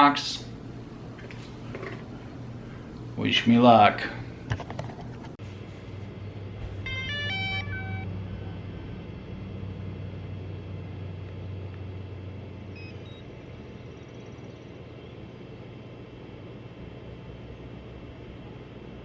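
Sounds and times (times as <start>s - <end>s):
drone low hum: 5.5s - 15.6s
drone electronic beeps: 6.8s - 10.0s, 12.7s - 13.3s.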